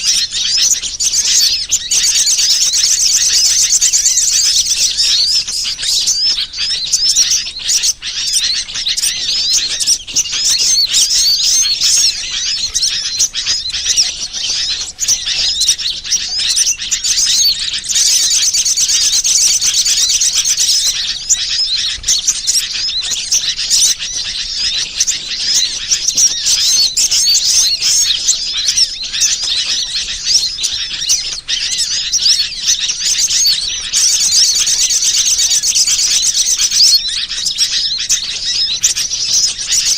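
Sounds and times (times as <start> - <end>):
chorus of small birds chirping: 0.0 - 39.9.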